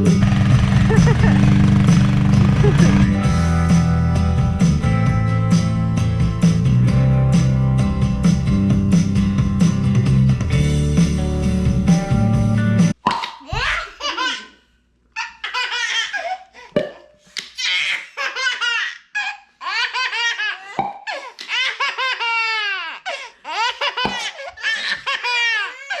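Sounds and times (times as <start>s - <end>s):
child laughing: 0.8s - 1.5s, 2.6s - 3.1s, 13.4s - 14.6s, 15.2s - 16.5s, 21.5s - 26.0s.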